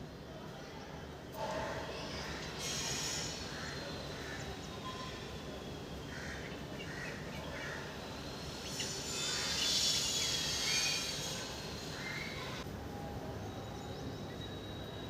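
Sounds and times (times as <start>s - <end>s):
outdoor background noise: 0.0s - 15.0s
high hiss: 2.6s - 3.8s.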